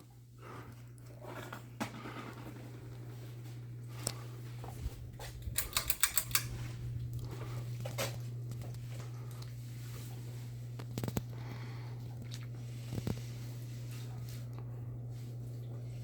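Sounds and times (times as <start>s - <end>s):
ceiling fan motor hum: 0.0s - 16.0s
sharp clicks: 5.4s - 6.5s.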